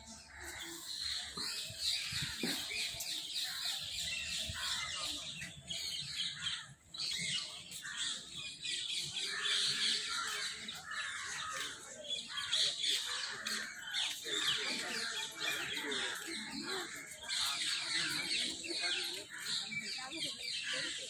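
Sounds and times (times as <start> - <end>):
many birds chirping: 0.0 - 21.0.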